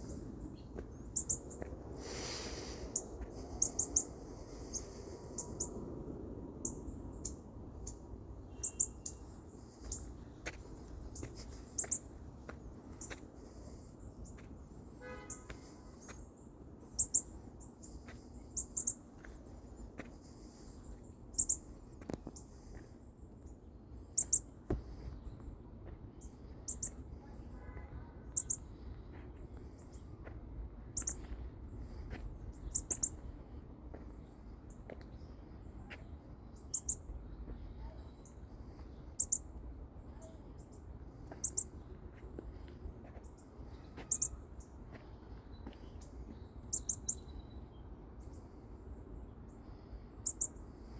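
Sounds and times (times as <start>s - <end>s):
baby bird peeping: 24.2s - 25.2s, 31.0s - 33.3s, 35.9s - 39.5s, 40.2s - 41.8s, 43.7s - 44.4s.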